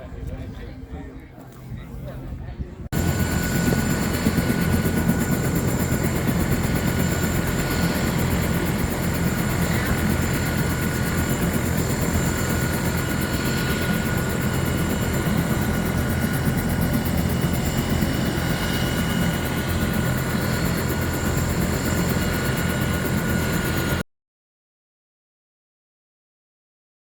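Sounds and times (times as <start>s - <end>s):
helicopter engine and rotor noise: 2.8s - 24.0s.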